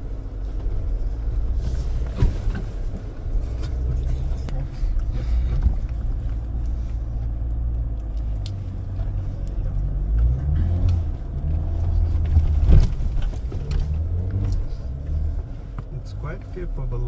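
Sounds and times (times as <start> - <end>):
engine low rumble inside cabin: 0.0 - 17.0
thump: 12.4 - 13.8.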